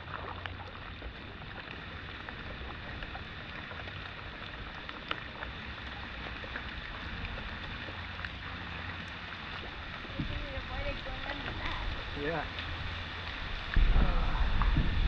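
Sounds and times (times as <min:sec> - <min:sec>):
rain falling on water: 0:00.0 - 0:15.0.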